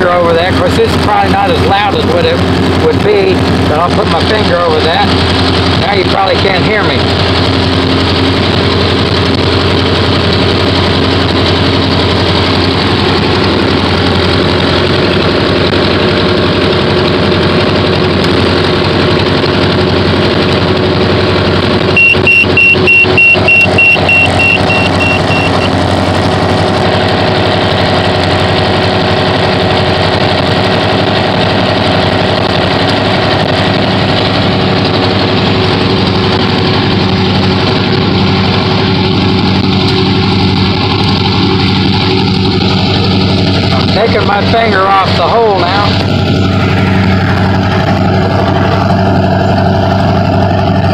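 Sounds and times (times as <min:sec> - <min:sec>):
muffled aircraft engine idling: 0:00.0 - 0:50.9
short high beeps: 0:22.0 - 0:25.8.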